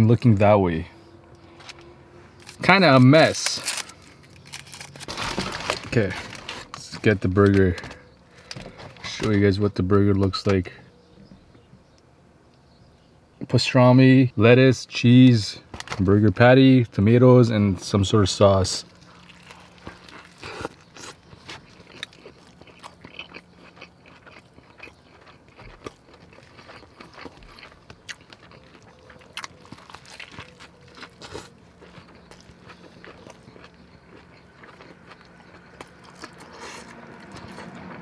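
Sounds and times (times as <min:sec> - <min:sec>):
person biting and chewing: 0:03.4 - 0:05.8, 0:18.9 - 0:38.0.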